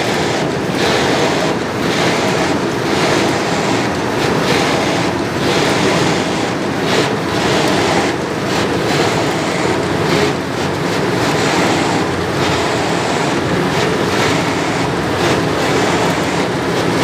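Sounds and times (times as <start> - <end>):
machine rushing noise: 0.0 - 17.0.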